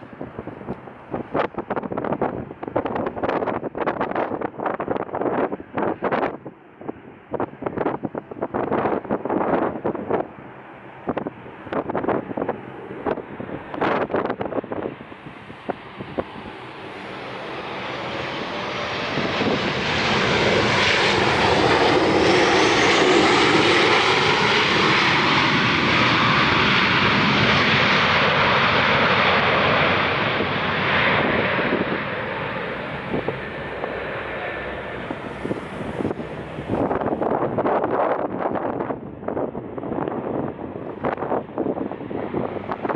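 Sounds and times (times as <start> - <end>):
airliner engines passing: 0.0 - 42.9.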